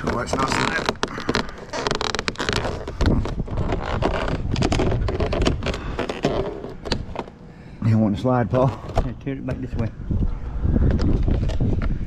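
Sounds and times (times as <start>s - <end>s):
plastic siding panel rattling and scraping: 0.0s - 7.4s, 8.5s - 9.9s.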